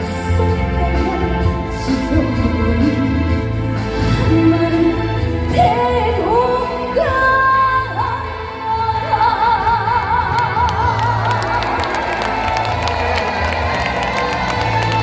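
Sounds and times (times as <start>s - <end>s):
woman singing: 0.0s - 12.1s
band playing: 11.2s - 15.0s.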